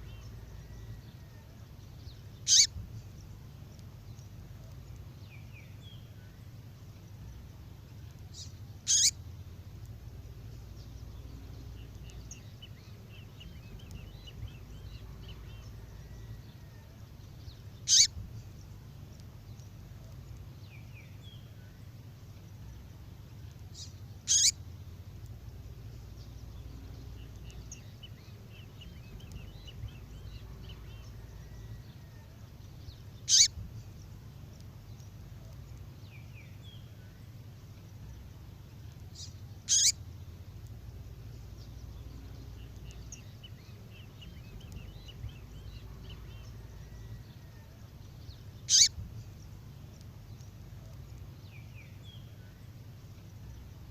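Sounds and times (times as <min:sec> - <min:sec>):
steady low hum: 0:00.0 - 0:53.9
sharp songbird calls: 0:02.3 - 0:02.8, 0:08.3 - 0:09.2, 0:17.6 - 0:18.3, 0:23.7 - 0:24.6, 0:32.9 - 0:33.9, 0:39.2 - 0:40.1, 0:48.6 - 0:49.3
faint thin bird trills: 0:02.4 - 0:02.8, 0:08.4 - 0:09.2, 0:17.8 - 0:18.1, 0:23.8 - 0:24.6, 0:33.3 - 0:33.6, 0:39.7 - 0:40.0, 0:48.7 - 0:49.0.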